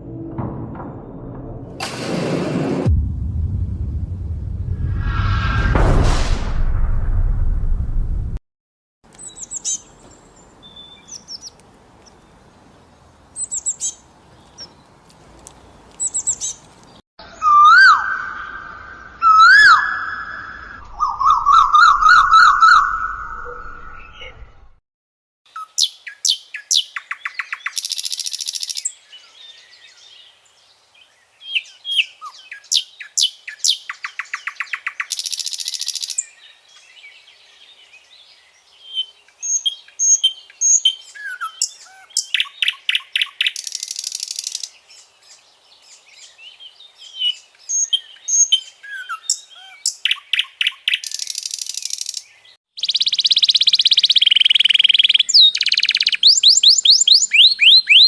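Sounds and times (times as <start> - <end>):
soft bird chirps: 9.1 - 12.4, 15.7 - 17.5, 25.5 - 58.0
songbird singing: 9.1 - 24.7, 25.5 - 58.0.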